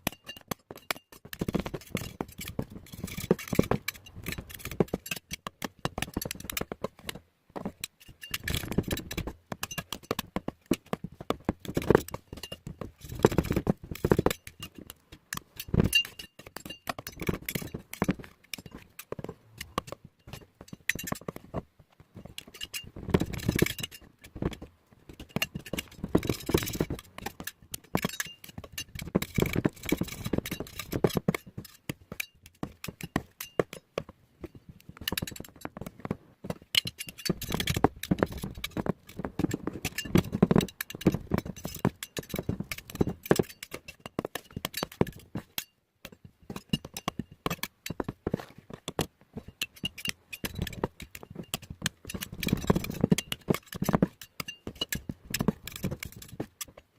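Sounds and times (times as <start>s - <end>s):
small hard objects clicking and scraping: 0.0s - 56.9s.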